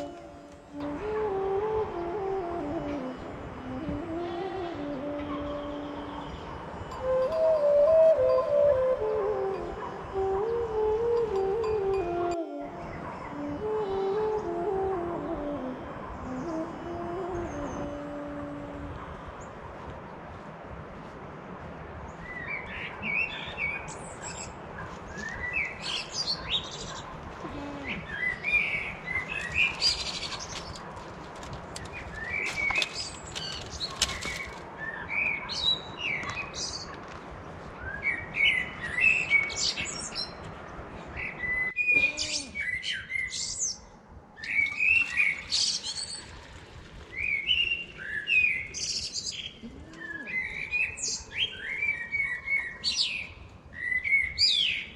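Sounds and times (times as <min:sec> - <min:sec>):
small birds chirping: 0:22.0 - 0:46.4.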